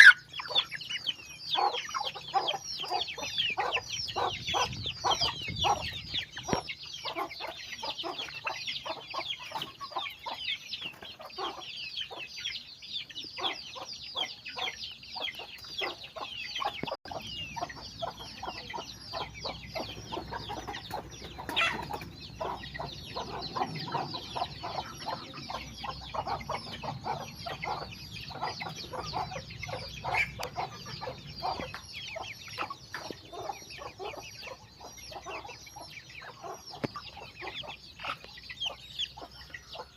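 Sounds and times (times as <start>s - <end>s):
chicks peeping: 0.0s - 39.9s
hens clucking: 0.0s - 39.9s.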